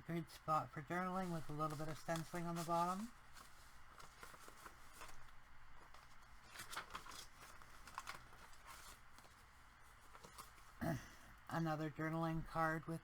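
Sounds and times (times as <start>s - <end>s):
paper rustling: 1.0s - 10.8s.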